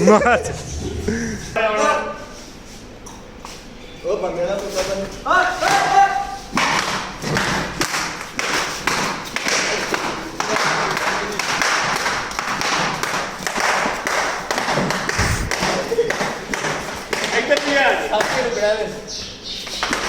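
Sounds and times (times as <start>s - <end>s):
thuds and slaps of blows: 6.6s - 17.4s
objects striking bodies and furniture: 14.6s - 15.8s.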